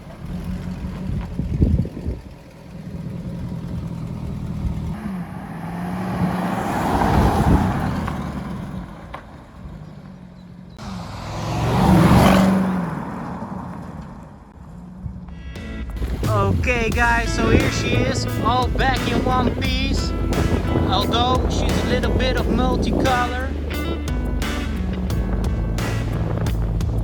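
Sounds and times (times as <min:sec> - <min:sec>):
car passing by: 0:04.9 - 0:10.1, 0:10.8 - 0:15.4, 0:16.0 - 0:27.0.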